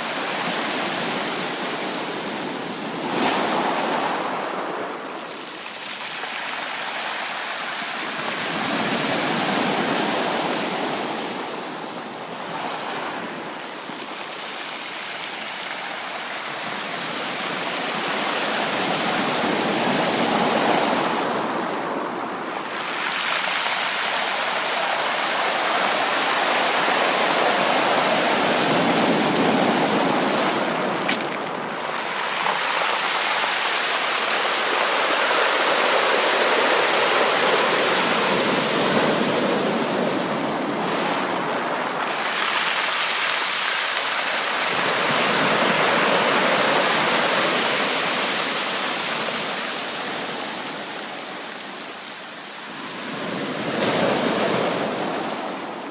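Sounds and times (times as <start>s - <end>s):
ocean surf breaking: 16.2s - 50.8s.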